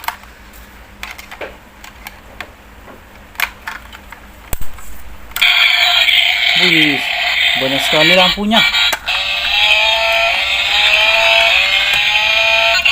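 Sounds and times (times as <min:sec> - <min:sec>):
toy electronic sound effects: 0:05.4 - 0:12.9.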